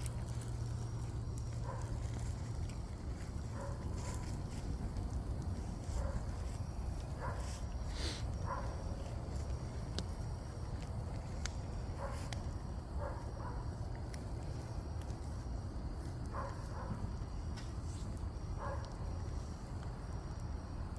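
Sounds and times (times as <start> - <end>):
fire crackling and popping: 0.0 - 20.9
dog barking: 1.6 - 2.0, 3.5 - 4.2, 5.9 - 6.4, 7.2 - 7.6, 8.4 - 8.8, 12.0 - 12.3, 13.0 - 13.6, 16.3 - 17.0, 18.6 - 19.0.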